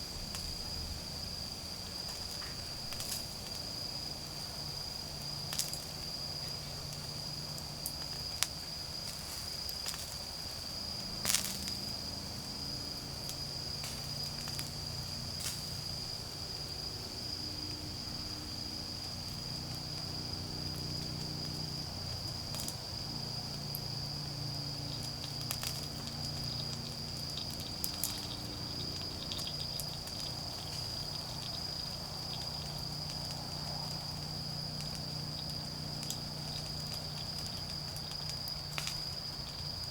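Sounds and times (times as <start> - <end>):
insects trilling: 0.0 - 39.9
campfire crackling and popping: 5.2 - 12.0, 13.2 - 15.9, 19.0 - 39.9.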